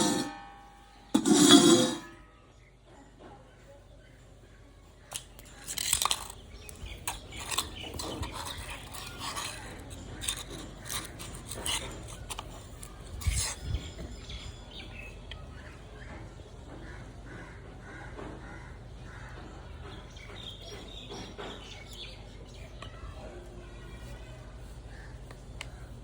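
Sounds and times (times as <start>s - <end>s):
hard objects clinking and knocking: 5.1s - 14.9s.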